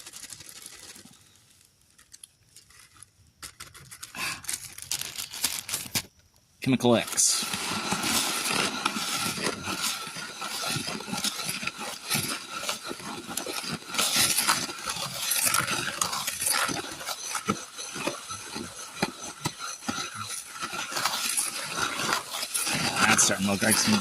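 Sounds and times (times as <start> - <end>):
wet clay being stirred: 6.9 - 24.0.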